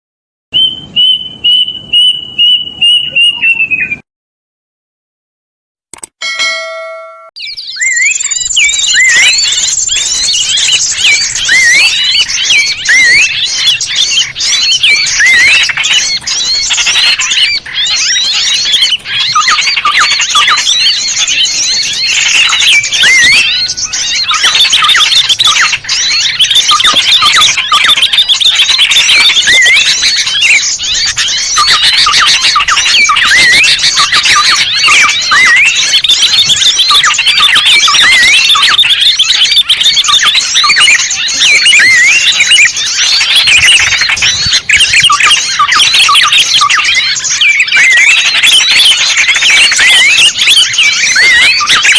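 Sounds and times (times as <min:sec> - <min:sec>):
small birds chirping: 0:00.5 - 0:04.0, 0:06.4 - 0:51.9.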